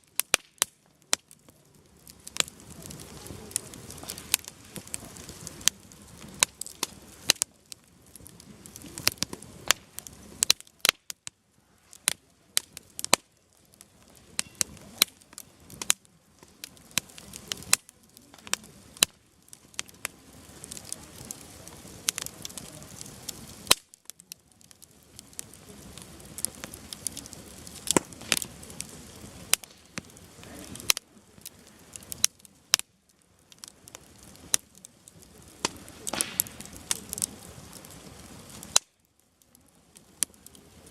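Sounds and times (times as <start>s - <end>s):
firewood popping and crackling: 0.0s - 40.9s
hiss of flame: 0.0s - 40.9s.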